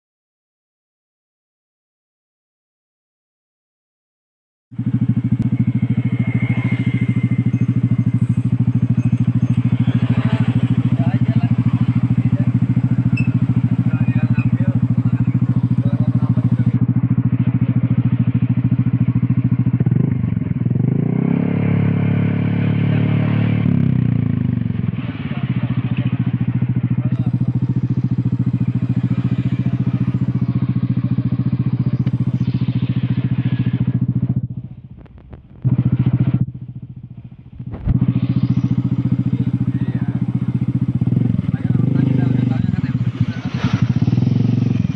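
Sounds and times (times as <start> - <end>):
motorcycle engine idling and revving: 4.7 - 44.9.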